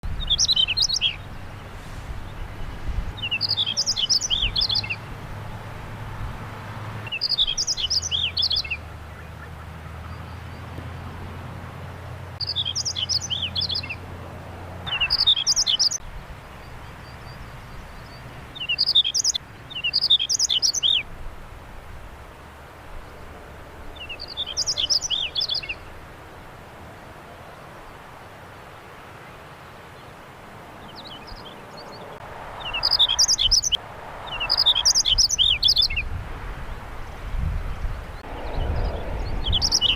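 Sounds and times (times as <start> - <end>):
bird warbling: 14.9 - 16.0.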